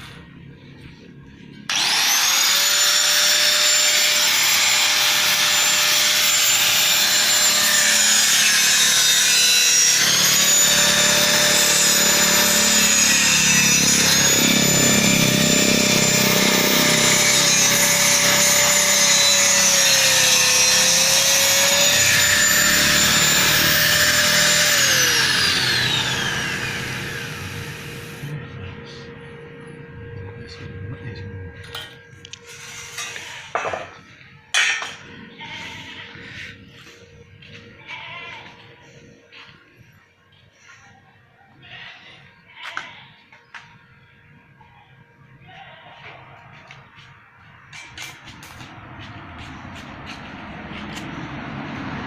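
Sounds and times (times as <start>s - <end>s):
electric power tool whining: 1.4s - 30.5s, 31.1s - 34.2s.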